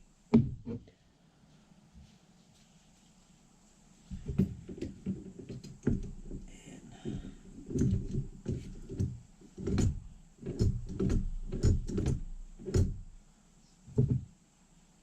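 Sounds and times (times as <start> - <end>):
metal parts knocking and clunking: 4.1 - 13.2.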